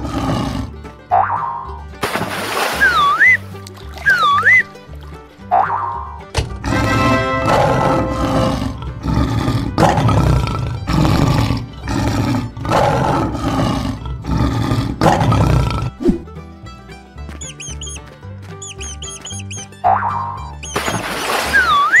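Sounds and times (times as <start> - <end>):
lion roaring: 0.0 - 0.8, 6.6 - 16.2
light children's music: 0.4 - 9.0, 16.0 - 22.0.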